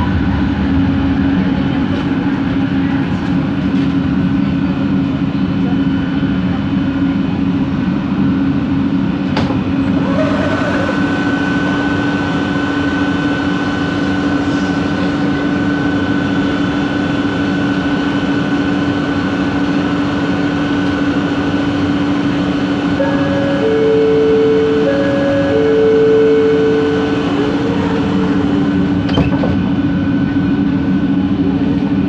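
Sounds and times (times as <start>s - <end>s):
train running noise: 0.0s - 32.0s
motor high whine: 8.3s - 32.0s
motor low hum: 9.6s - 32.0s
motor tones switching: 23.0s - 29.6s.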